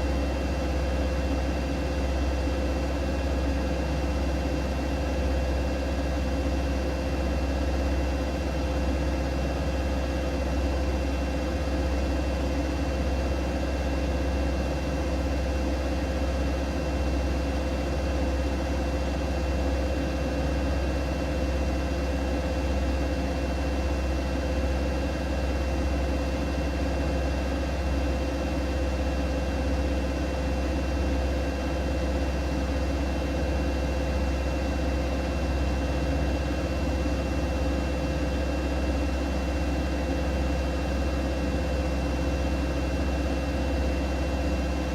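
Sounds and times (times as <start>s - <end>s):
washing machine running: 0.0s - 44.9s.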